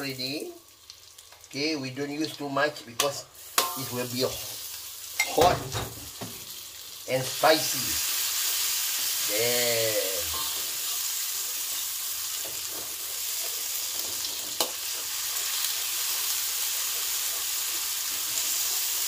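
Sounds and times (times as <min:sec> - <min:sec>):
paste sizzling in hot oil: 0:00.0 - 0:02.5, 0:03.2 - 0:19.0
metal spatula stirring: 0:03.5 - 0:04.0, 0:10.3 - 0:11.0.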